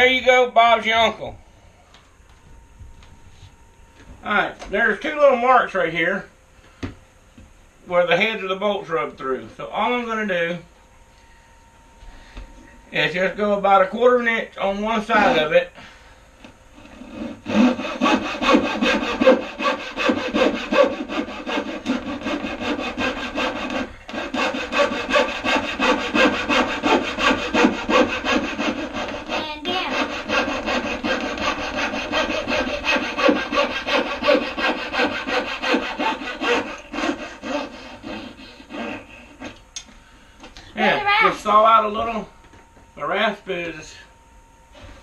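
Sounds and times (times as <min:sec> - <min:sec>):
hand saw cutting wood: 0:14.9 - 0:15.5, 0:16.8 - 0:39.6.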